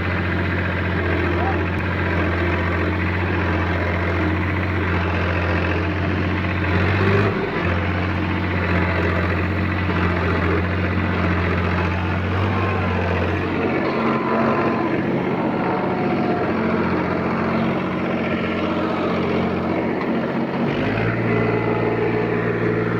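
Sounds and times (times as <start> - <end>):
tractor engine under load: 0.0 - 22.9.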